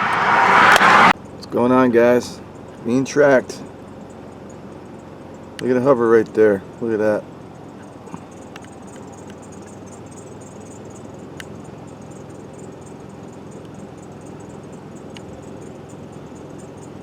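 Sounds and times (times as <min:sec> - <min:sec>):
low background hum: 0:01.2 - 0:17.0
faint high chirping: 0:07.4 - 0:17.0.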